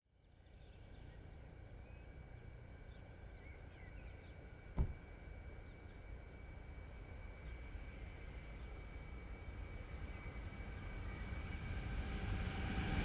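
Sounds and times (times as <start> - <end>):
dull low thump: 4.8 - 5.1.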